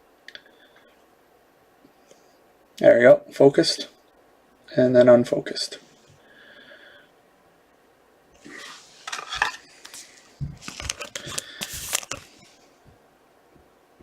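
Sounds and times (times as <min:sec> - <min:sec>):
plastic and card rustling: 0:08.6 - 0:12.6.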